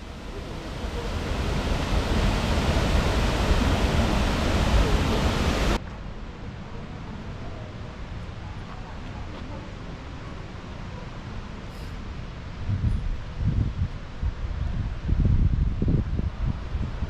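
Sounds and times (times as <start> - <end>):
waterfall roaring: 0.0 - 5.8.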